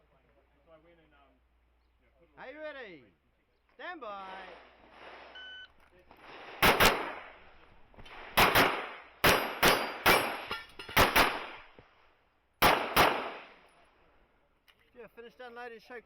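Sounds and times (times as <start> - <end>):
handgun shots: 6.6 - 7.2, 8.3 - 11.7, 12.6 - 13.5.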